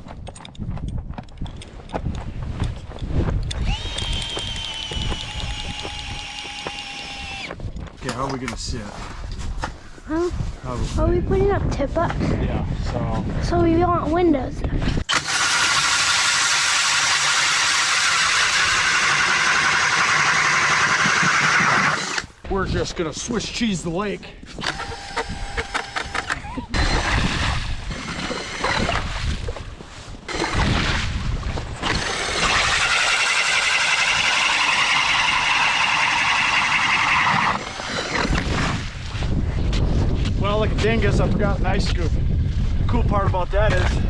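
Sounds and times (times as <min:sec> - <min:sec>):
power ice auger drilling ice: 0:03.5 - 0:07.6, 0:15.1 - 0:22.4, 0:24.6 - 0:29.6, 0:30.3 - 0:38.9.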